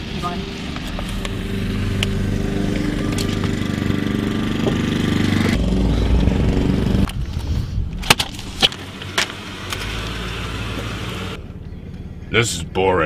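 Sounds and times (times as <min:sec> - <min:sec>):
car engine running: 0:00.0 - 0:07.3, 0:08.3 - 0:13.0.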